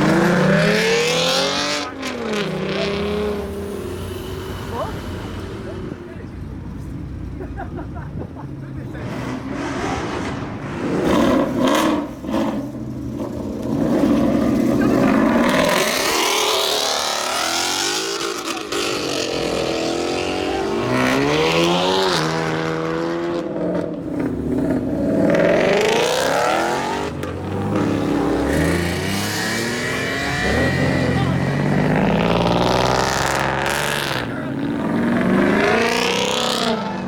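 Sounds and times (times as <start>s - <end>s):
car engine revving hard: 0.0s - 5.9s, 13.7s - 23.8s, 24.4s - 37.0s.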